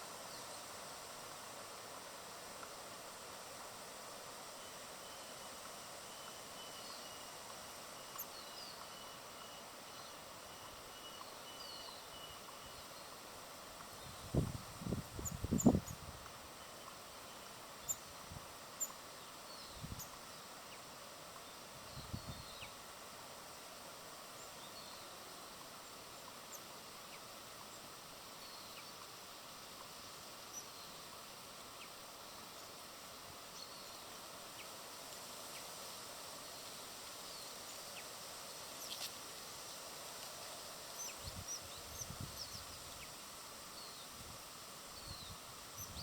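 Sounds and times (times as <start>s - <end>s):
background hiss: 0.0s - 46.0s
faint bird chirps: 4.6s - 13.2s, 16.6s - 18.1s, 18.8s - 22.8s.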